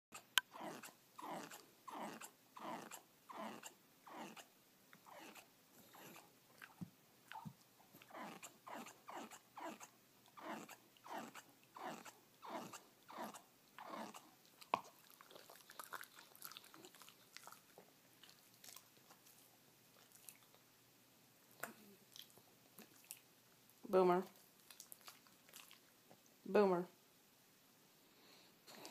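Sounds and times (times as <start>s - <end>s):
dog chewing wetly: 5.1s - 20.6s, 24.4s - 26.0s.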